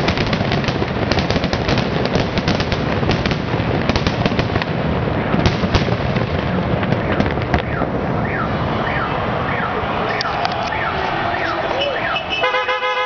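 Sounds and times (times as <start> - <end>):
sharp firework cracks: 0.0 - 8.2
fireworks bangs and crackling: 0.0 - 12.5.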